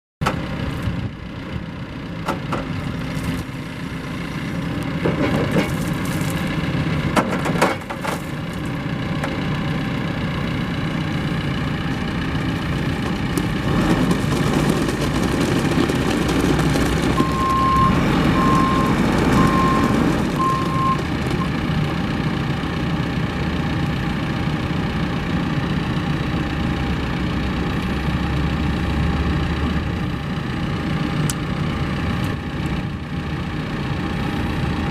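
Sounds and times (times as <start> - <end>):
diesel engine running: 0.2 - 34.9
backup alarm beeping: 17.2 - 21.5.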